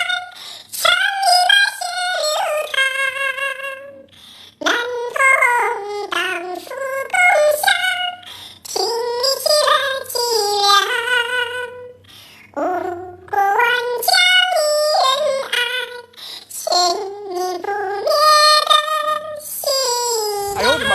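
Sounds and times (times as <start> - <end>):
myna mimicking a melody: 20.2 - 20.9.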